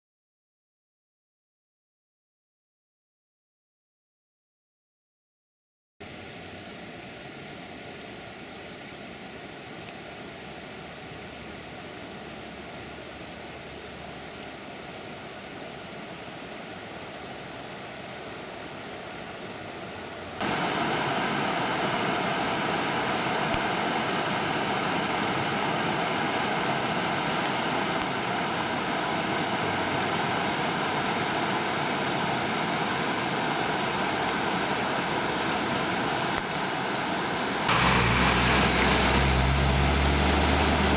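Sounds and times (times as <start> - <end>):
floodwater rushing: 20.4 - 40.9.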